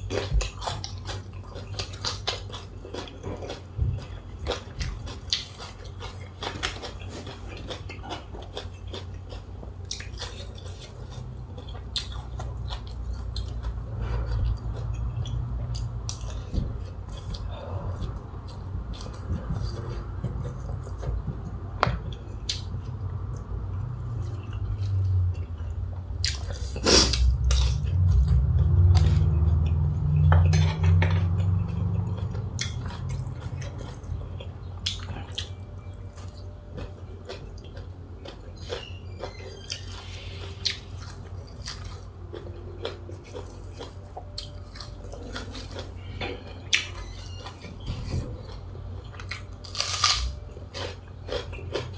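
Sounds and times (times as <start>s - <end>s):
low rumble: 13.9s - 34.9s
utensils clinking against dishes: 30.2s - 31.9s.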